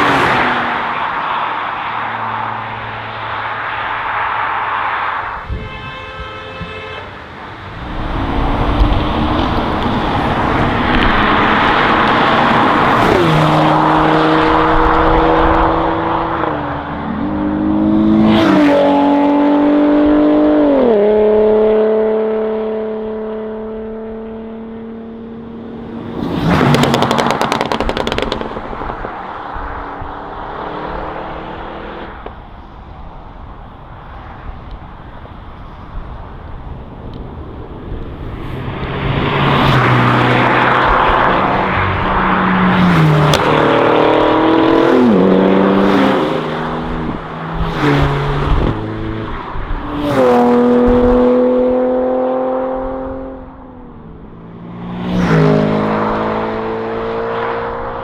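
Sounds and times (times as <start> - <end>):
car passing close: 0.0 - 5.5, 7.2 - 33.5, 34.2 - 58.0
sports car engine accelerating: 7.8 - 32.3, 38.7 - 58.0.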